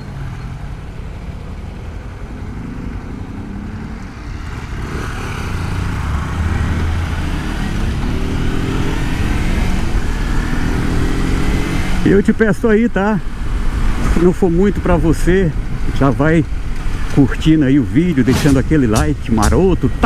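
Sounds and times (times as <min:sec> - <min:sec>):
motorcycle engine running: 0:00.0 - 0:12.2
road and wind noise: 0:00.0 - 0:20.0.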